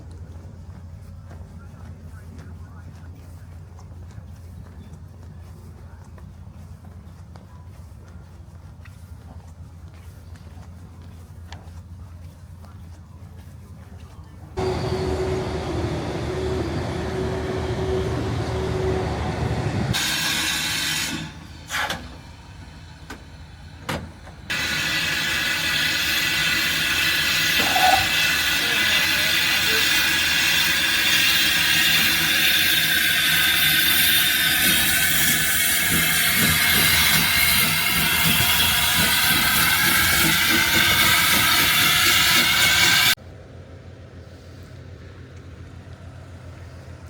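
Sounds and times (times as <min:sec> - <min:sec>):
low rumbling: 0:14.6 - 0:20.0
steam locomotive hissing: 0:14.6 - 0:43.2.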